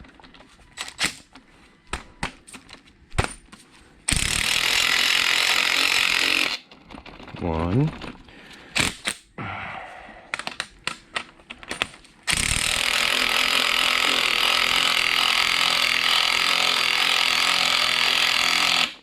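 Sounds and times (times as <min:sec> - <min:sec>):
power tool driving threaded rod: 0:04.1 - 0:06.6, 0:12.3 - 0:19.0
tool fitting clicks: 0:10.3 - 0:12.1.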